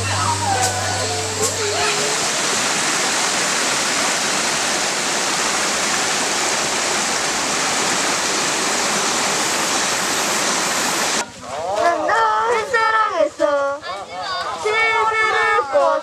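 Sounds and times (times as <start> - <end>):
flowing water rushing: 0.0 - 11.2.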